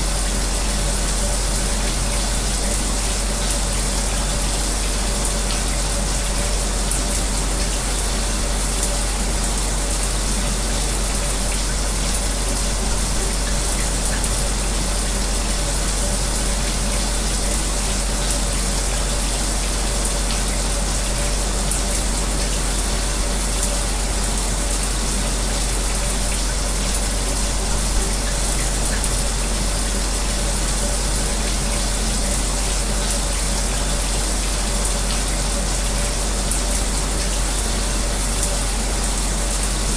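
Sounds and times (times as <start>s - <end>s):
shower spray running: 0.0s - 39.9s.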